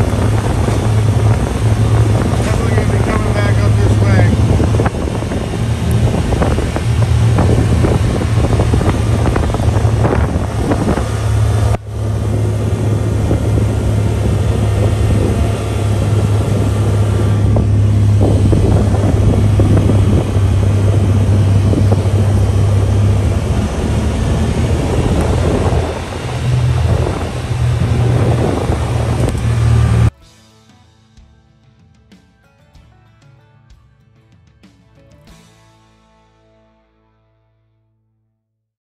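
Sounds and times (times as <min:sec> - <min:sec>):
wind buffeting microphone: 0:00.0 - 0:30.1
vehicle engine running: 0:00.0 - 0:30.2.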